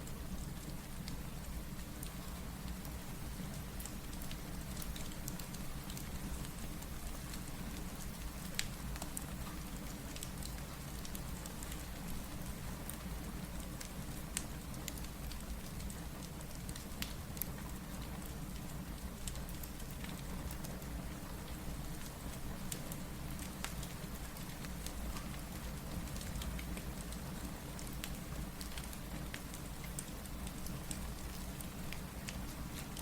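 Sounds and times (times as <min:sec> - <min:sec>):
steady rain hiss: 0:00.0 - 0:33.0
wood fire crackling: 0:07.3 - 0:33.0.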